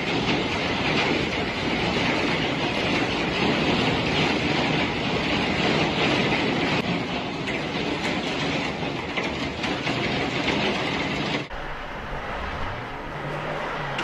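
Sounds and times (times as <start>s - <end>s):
strong storm wind rushing: 10.6s - 14.0s.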